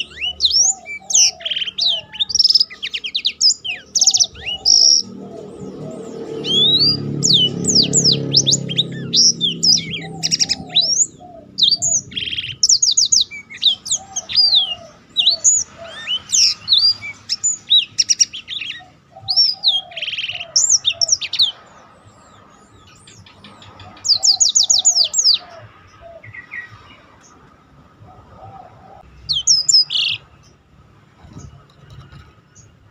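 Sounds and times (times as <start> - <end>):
bird singing chirps and trills: 0.0 - 32.9.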